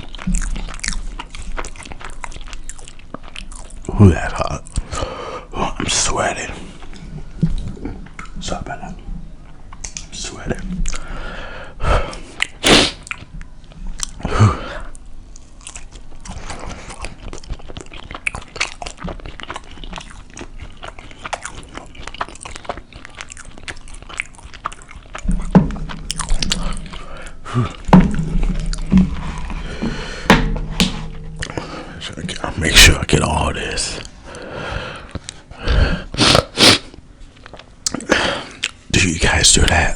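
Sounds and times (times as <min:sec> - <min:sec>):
man chewing food: 0:00.0 - 0:05.5, 0:06.6 - 0:08.4, 0:09.2 - 0:38.9
wet mouth clicks and smacks: 0:09.7 - 0:10.1, 0:12.1 - 0:13.3
heavier bumps: 0:25.2 - 0:32.4.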